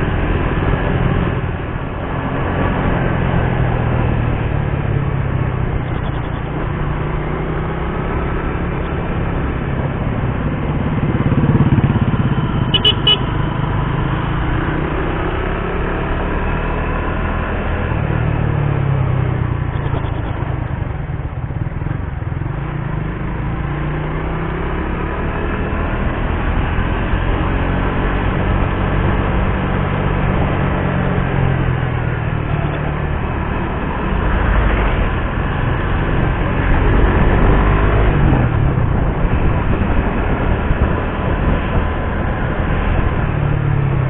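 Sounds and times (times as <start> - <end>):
motorcycle engine revving: 0.0 - 44.0
horn honking: 12.7 - 13.4.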